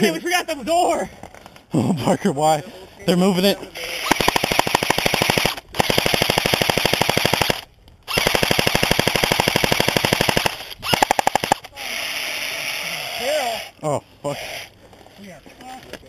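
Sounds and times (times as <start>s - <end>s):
airsoft rifle firing bursts: 4.0s - 11.7s.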